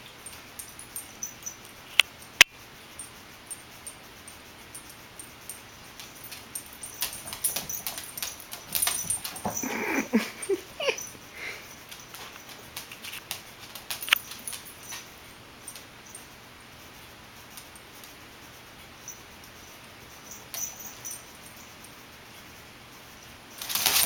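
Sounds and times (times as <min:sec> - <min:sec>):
scuffling and light tapping: 0:06.0 - 0:11.2
dog whimpering: 0:09.4 - 0:11.6.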